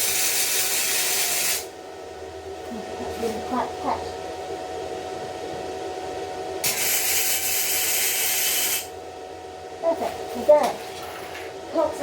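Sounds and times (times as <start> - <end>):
welding arc crackling hiss: 0.0 - 1.7, 6.6 - 8.9.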